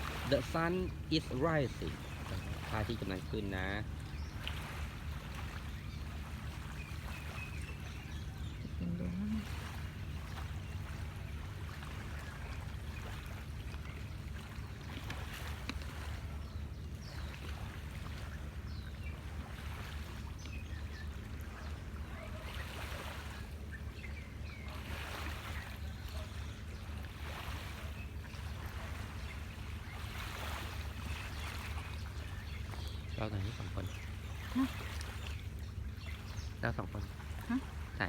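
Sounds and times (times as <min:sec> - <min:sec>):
sea waves washing onto shore: 0:00.0 - 0:07.8, 0:24.6 - 0:35.9
faint bird chirps: 0:20.3 - 0:38.0.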